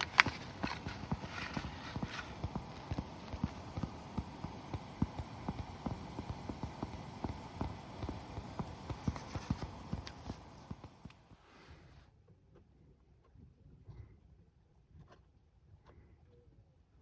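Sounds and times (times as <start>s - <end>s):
wood fire crackling: 0.0s - 11.3s.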